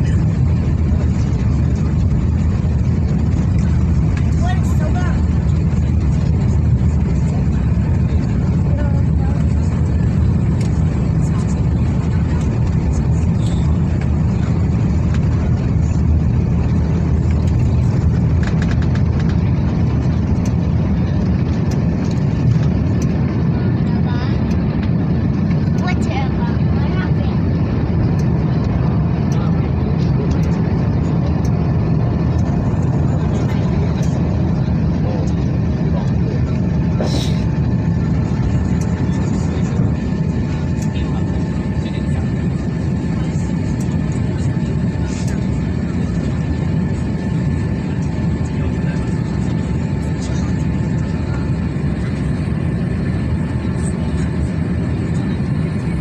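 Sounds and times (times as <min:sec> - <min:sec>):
airliner low rumble: 0:00.0 - 0:56.0.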